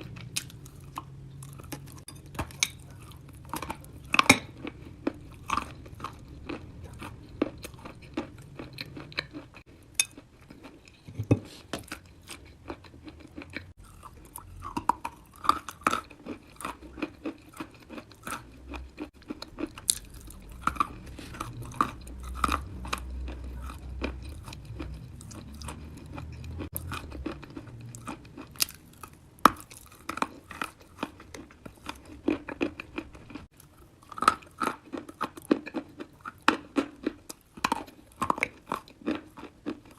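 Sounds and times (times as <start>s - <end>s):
person chewing crunchy chalk: 2.8s - 39.9s.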